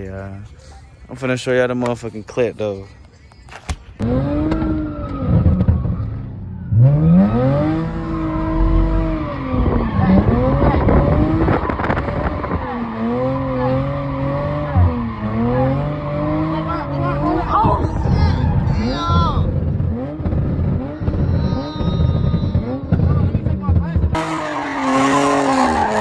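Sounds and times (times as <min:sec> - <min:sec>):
tyres skidding: 0:03.6 - 0:26.0
car engine revving hard: 0:04.0 - 0:06.0, 0:06.6 - 0:21.6, 0:22.2 - 0:26.0.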